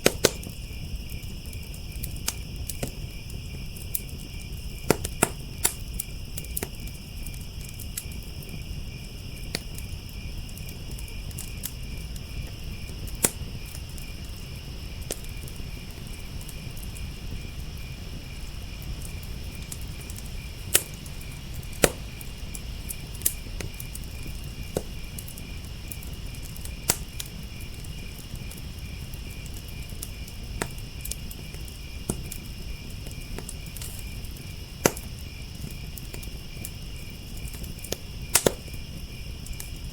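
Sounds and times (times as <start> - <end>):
crickets chirping: 0.0 - 39.9
wood fire crackling: 0.0 - 39.9.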